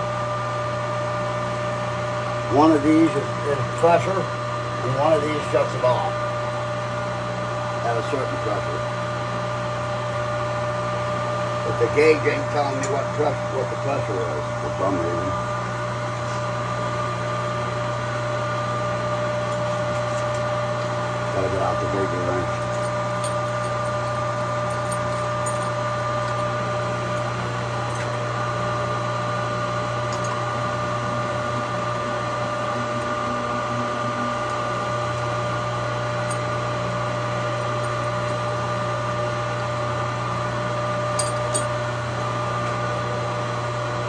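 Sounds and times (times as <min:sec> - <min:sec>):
electric pump motor humming: 0:00.0 - 0:44.0.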